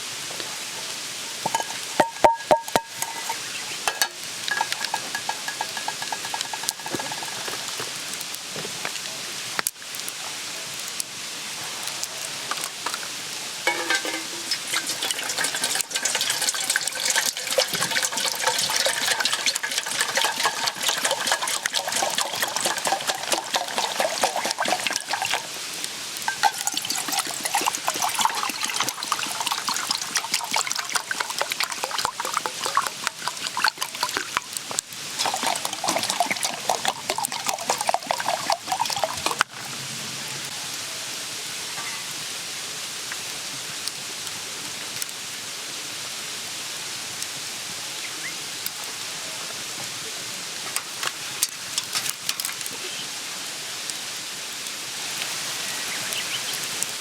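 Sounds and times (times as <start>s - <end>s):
liquid sizzling in a pan: 0.0s - 10.2s, 10.8s - 39.6s, 50.5s - 57.0s.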